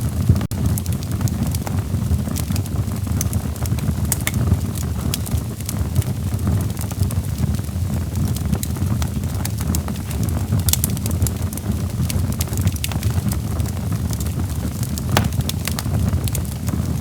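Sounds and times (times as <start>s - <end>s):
logs crackling and popping: 15.2s - 15.8s.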